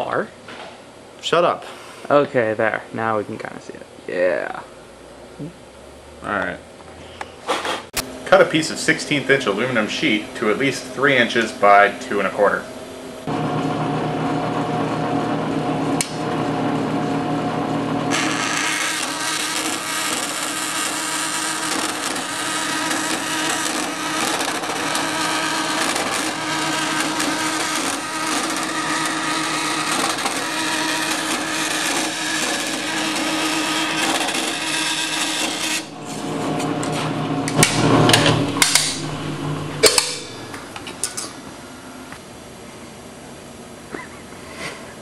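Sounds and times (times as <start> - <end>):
power tool cutting metal sheet: 18.1 - 41.3.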